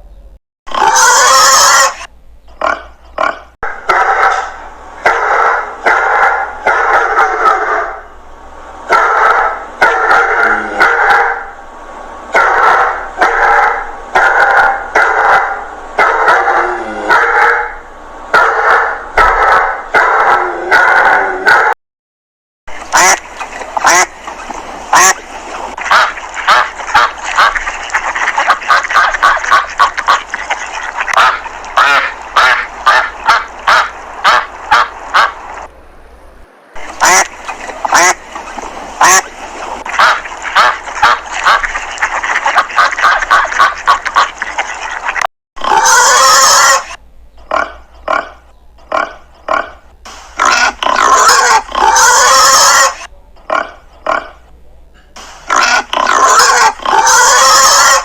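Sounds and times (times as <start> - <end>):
farm animals calling: 0.7 - 8.1, 8.9 - 11.5, 22.8 - 35.6, 36.9 - 49.8, 50.4 - 54.4, 55.5 - 58.0.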